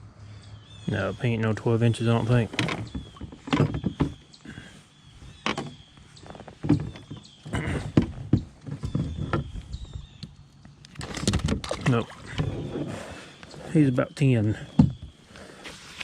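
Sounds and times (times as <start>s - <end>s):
fish and gear knocking on kayak hull: 2.5s - 4.7s, 6.6s - 10.0s.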